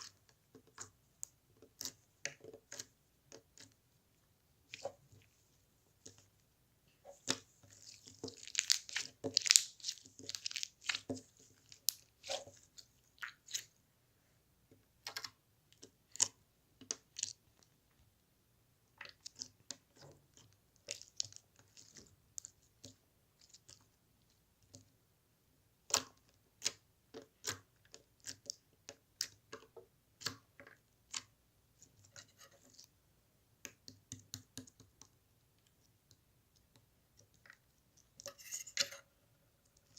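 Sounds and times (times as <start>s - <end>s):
clicks and scratchy handling noises: 36.6s - 39.9s.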